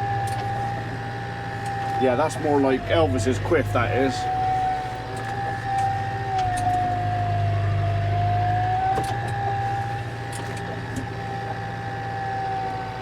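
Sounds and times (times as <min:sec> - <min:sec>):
tractor engine drone: 0:00.0 - 0:13.0
wavering whine: 0:00.0 - 0:13.0.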